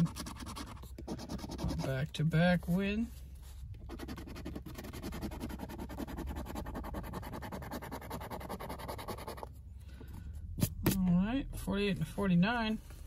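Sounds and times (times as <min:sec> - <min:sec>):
coin scratching lottery ticket: 0:00.0 - 0:01.9, 0:03.9 - 0:09.4.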